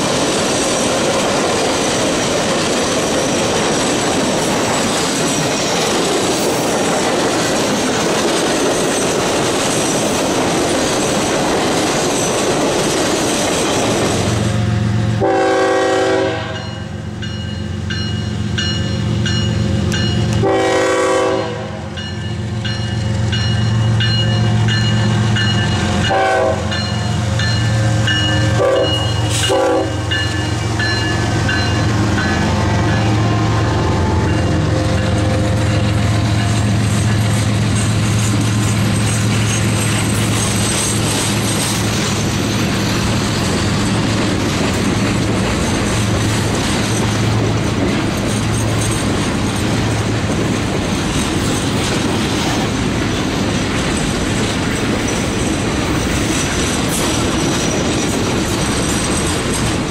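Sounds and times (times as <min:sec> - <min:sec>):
wheels clickety-clack: 0:00.0 - 0:14.6, 0:35.1 - 0:59.9
diesel locomotive engine running: 0:00.0 - 0:59.9
train horn blasts: 0:15.1 - 0:17.0, 0:20.3 - 0:22.0, 0:25.9 - 0:27.0, 0:28.0 - 0:36.8
bell ringing: 0:16.6 - 0:20.4, 0:22.0 - 0:37.3.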